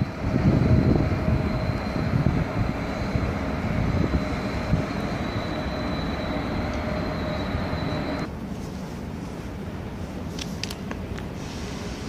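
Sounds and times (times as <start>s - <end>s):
high-pitched whine: 0.0s - 8.3s
train rumbling: 0.0s - 12.0s.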